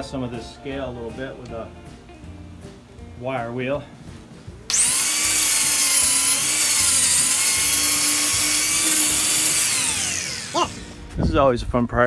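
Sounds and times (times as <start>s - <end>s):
wire wheel power tool whining: 4.7s - 11.2s.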